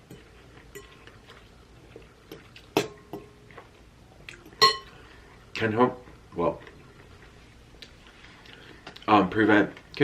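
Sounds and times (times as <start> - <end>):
tableware clinking: 4.5 - 5.0.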